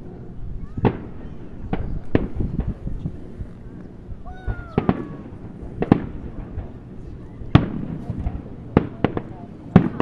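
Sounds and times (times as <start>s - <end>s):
fireworks pops and crackles: 0.8s - 3.2s, 4.4s - 6.8s, 7.5s - 10.0s
fireworks bangs: 4.3s - 6.8s, 7.5s - 10.0s.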